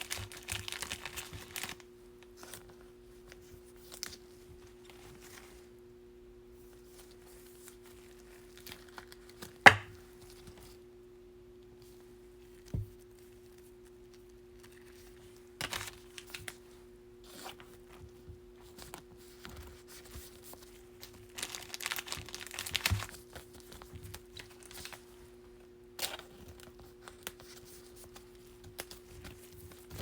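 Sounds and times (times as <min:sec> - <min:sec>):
foil wrapper crinkling and tearing: 0:00.0 - 0:01.9, 0:08.0 - 0:09.7, 0:21.0 - 0:25.0
cards being handled: 0:06.9 - 0:10.7.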